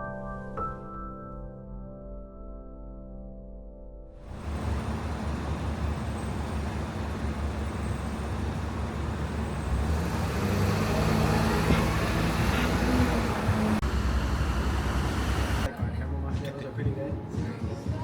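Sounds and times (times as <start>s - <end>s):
city traffic rumble: 4.2s - 15.7s.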